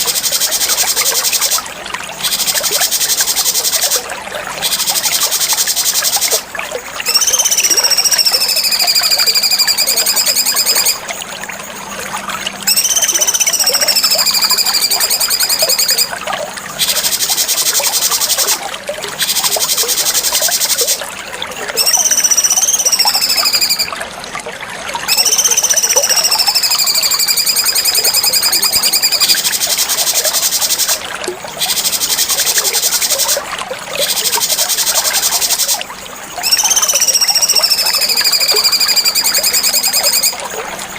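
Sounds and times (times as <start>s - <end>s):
bird song with buzzy trills: 7.0s - 11.0s, 11.7s - 16.1s, 21.8s - 24.0s, 25.0s - 31.0s, 36.4s - 40.4s.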